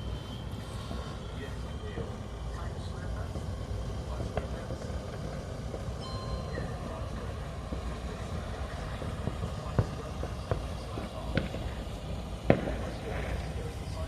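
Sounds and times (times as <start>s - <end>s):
distant fireworks: 0.0s - 14.0s
steady low rumble: 0.0s - 14.0s
sharp bangs: 8.9s - 14.0s.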